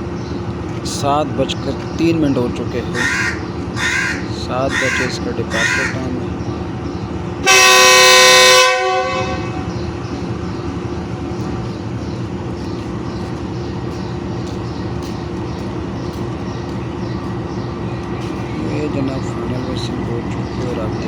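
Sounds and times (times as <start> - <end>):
diesel engine running: 0.0 - 21.0
locomotive air horn blast: 7.4 - 9.7.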